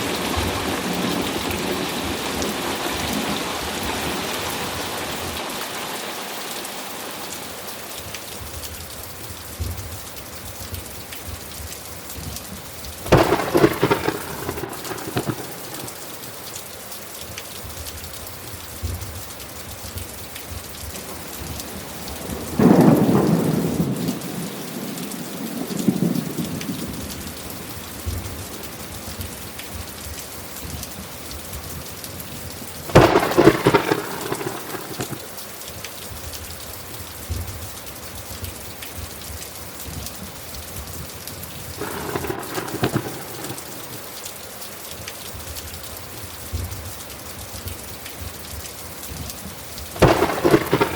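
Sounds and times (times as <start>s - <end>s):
thunderclaps rumbling: 0.0s - 5.4s, 13.0s - 16.3s, 20.8s - 28.7s, 32.8s - 35.4s, 41.6s - 44.2s, 49.9s - 50.9s
steady rain falling: 0.0s - 50.9s.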